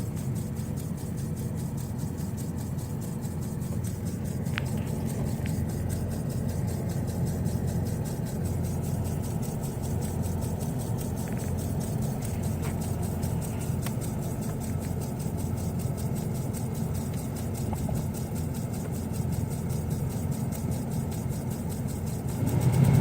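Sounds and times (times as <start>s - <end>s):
car engine idling: 0.0s - 23.0s
rapid ticking behind glove box: 0.0s - 23.0s.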